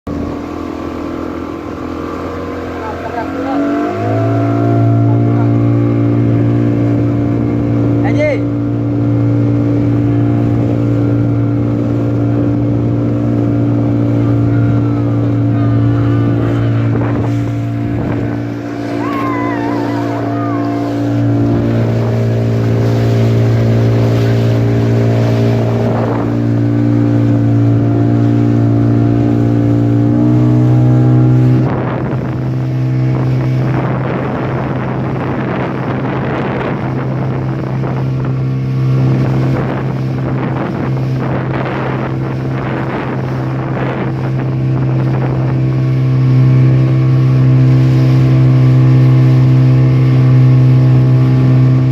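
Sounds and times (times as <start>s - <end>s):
motorboat engine: 0.0s - 51.9s
water noise: 0.0s - 51.9s
wind noise: 9.9s - 28.6s, 29.2s - 51.9s.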